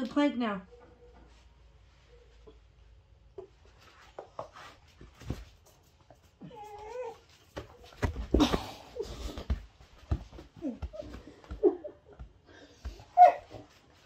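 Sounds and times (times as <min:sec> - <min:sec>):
dog whining: 0:06.4 - 0:07.5, 0:13.0 - 0:13.7
thumps of dog leaping: 0:07.5 - 0:11.2.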